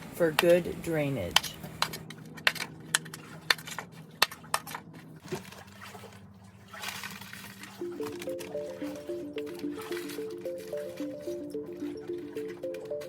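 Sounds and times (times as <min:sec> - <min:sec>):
light background music: 0:07.6 - 0:13.0.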